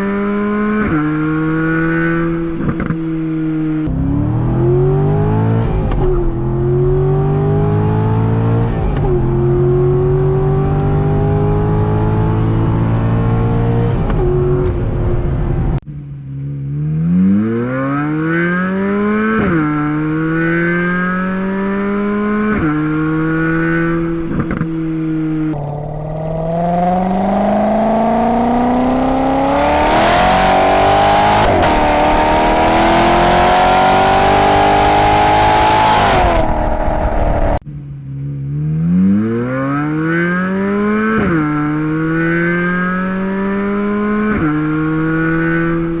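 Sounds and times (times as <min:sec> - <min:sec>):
car engine accelerating hard: 0:00.0 - 0:46.0.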